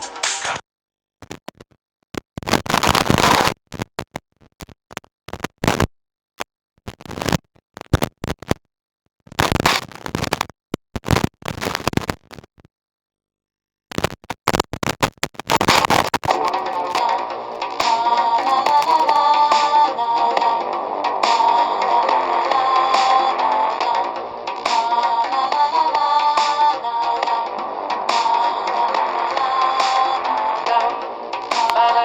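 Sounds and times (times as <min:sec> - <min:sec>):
bursts of crackling noise: 0:14.0 - 0:32.0.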